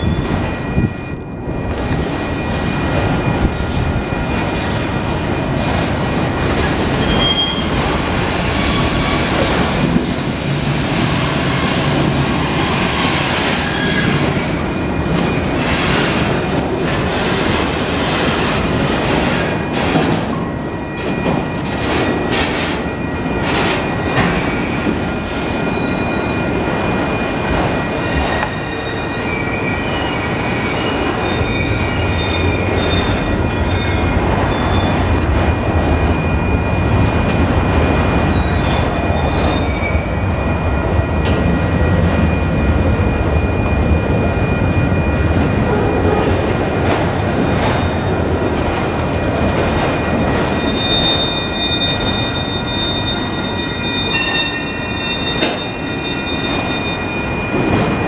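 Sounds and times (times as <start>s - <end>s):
freight cars rumbling and clattering: 0.0s - 58.0s
wheel squeal: 7.0s - 7.8s, 12.6s - 16.4s, 23.4s - 35.0s, 38.3s - 40.4s, 50.0s - 58.0s.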